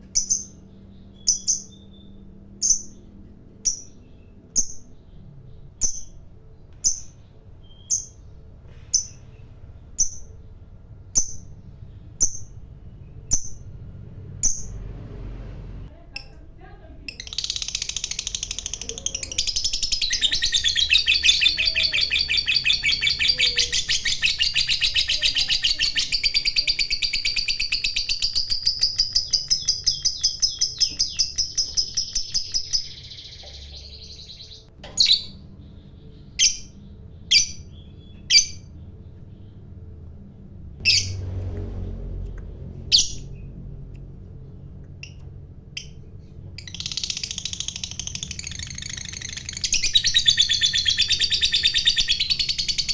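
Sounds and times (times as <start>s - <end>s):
sharp bird chirps: 0.0s - 13.8s, 17.2s - 39.8s, 45.0s - 52.9s
lovebird chattering trill: 1.2s - 5.2s, 17.1s - 39.5s, 46.6s - 52.9s.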